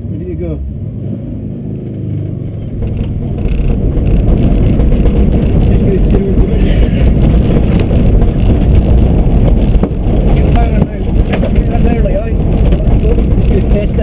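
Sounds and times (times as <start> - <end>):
rally car engine and road noise: 0.0 - 14.0.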